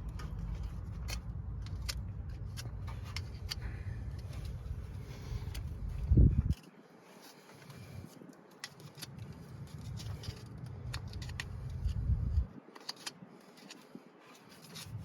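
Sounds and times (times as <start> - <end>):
low rumble: 0.0 - 6.6, 11.0 - 12.5.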